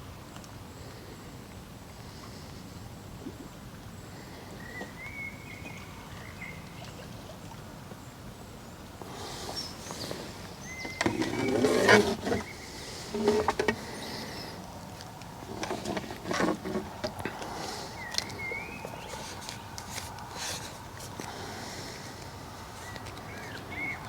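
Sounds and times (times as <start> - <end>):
rustling and clattering handling noise: 9.9 - 17.5.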